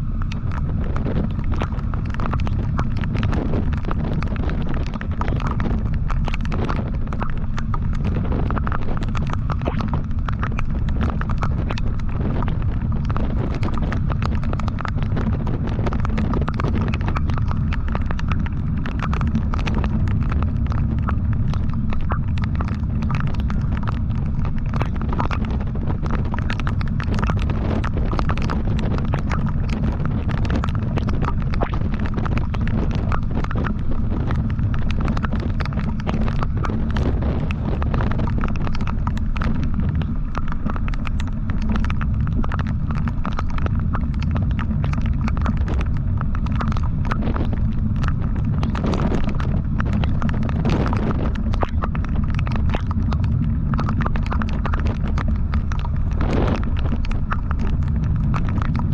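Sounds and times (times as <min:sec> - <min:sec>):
rapid irregular crackle: 0:00.0 - 0:58.9
wind buffeting microphone: 0:00.0 - 0:58.9.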